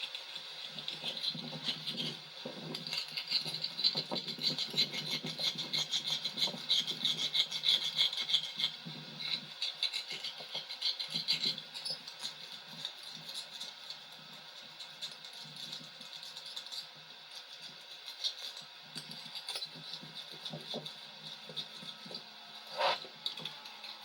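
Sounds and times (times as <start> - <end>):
rubbing and scraping on rubber: 19.2 - 23.1.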